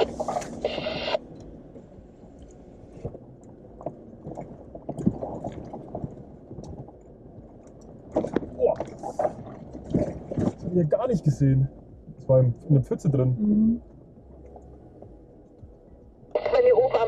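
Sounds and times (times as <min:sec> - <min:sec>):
vehicle engine low rumble: 0:00.0 - 0:17.0
suspension knocks and thumps: 0:03.0 - 0:11.0
mud and water squishing: 0:07.4 - 0:11.0.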